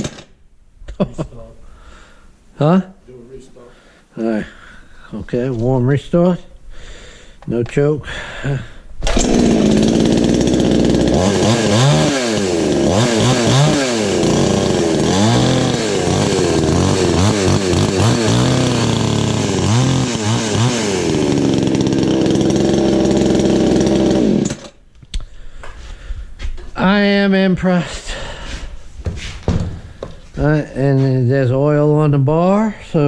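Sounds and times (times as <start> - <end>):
chainsaw engine revving: 9.0 - 24.8.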